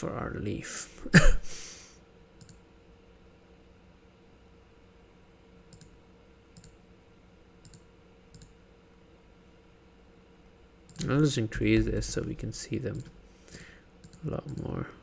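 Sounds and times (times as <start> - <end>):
computer mouse clicks: 2.4 - 2.6, 5.7 - 6.0, 6.6 - 6.8, 7.6 - 8.6, 12.9 - 14.7.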